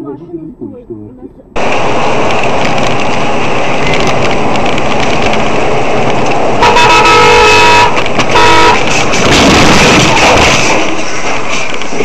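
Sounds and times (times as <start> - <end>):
road and engine noise: 0.0 - 12.0
vehicle horn honking: 6.6 - 8.8.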